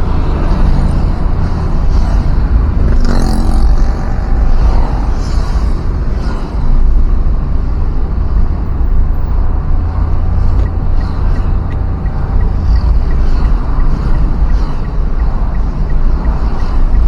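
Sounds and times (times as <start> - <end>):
vehicle road noise: 0.0 - 17.0.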